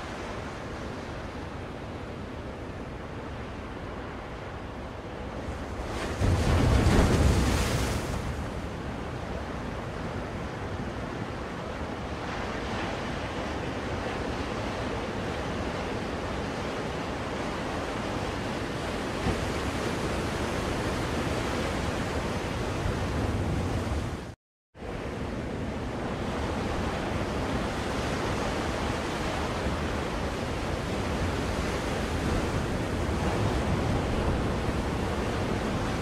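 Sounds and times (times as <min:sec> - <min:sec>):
ocean waves breaking on shore: 0:00.0 - 0:36.0.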